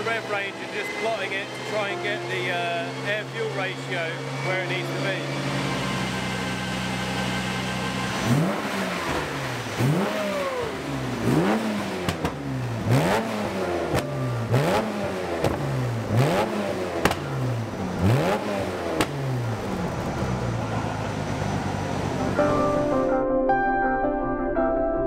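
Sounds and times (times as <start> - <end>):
car engine revving: 0.0 - 23.1
exhaust cracks: 2.9 - 22.2.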